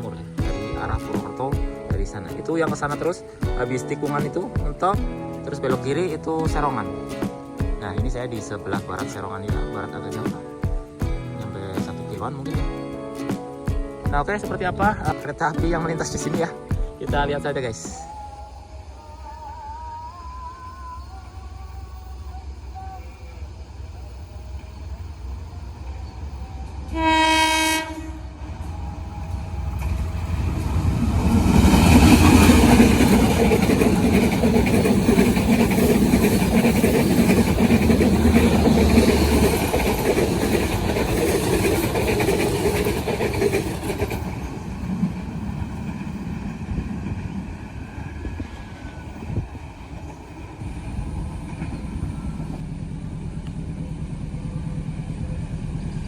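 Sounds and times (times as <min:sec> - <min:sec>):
train horn blast: 0:26.8 - 0:30.8
train wheels clattering on rails: 0:29.7 - 0:56.0.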